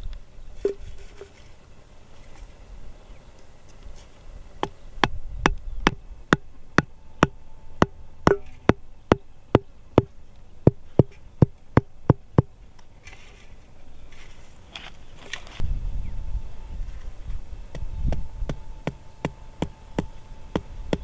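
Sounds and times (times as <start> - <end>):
sharp ringing knocks: 4.6 - 12.6, 17.7 - 21.0.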